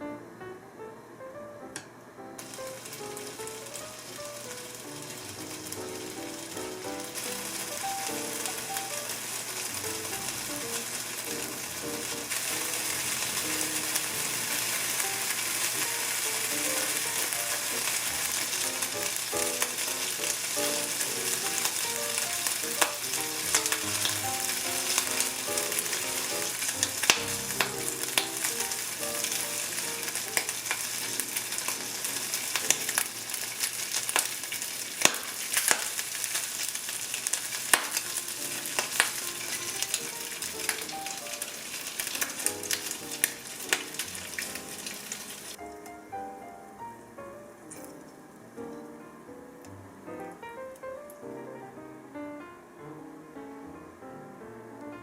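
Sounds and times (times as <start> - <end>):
food sizzling in a frying pan: 2.4 - 45.7.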